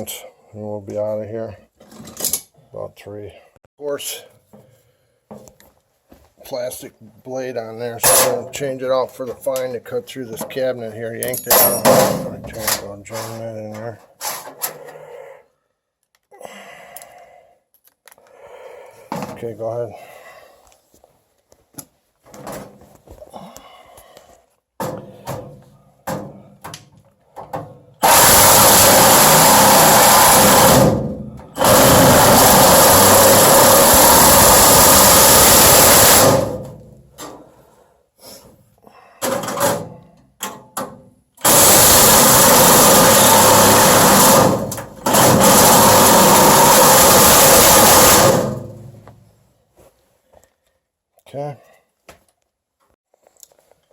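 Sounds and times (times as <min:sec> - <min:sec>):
power saw cutting sheet metal: 0:28.0 - 0:36.9, 0:41.4 - 0:48.9.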